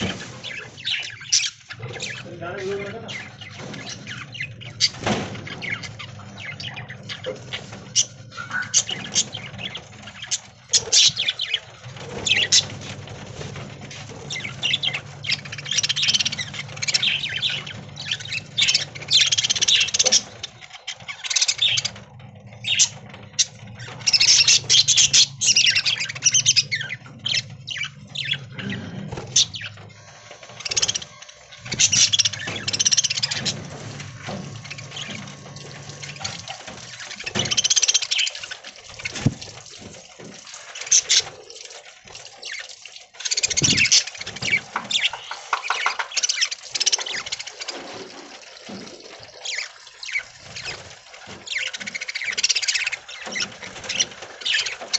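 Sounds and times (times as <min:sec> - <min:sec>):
budgerigars chirping and chattering: 0:00.0 - 0:39.6, 0:40.2 - 0:54.9
bird squawks: 0:08.0 - 0:11.6.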